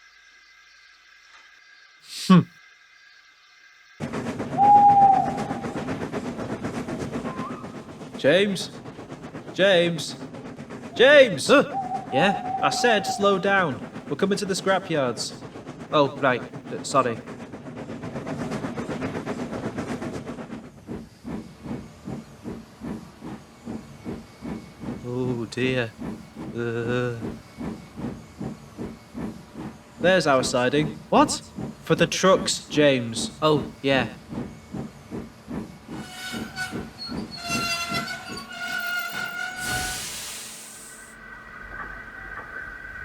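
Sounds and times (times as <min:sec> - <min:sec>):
steam locomotive chuffing: 0:04.0 - 0:43.0
loud hiss of steam: 0:39.6 - 0:41.2.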